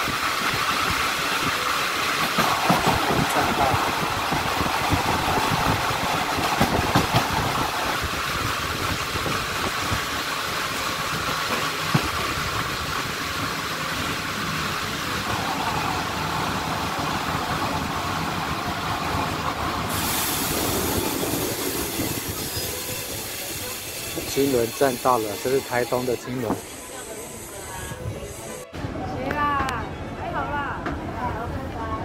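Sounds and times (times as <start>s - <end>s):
train wheels clicking: 0.0s - 14.2s, 19.8s - 28.6s
train carriage rumble and rattle: 0.0s - 32.0s.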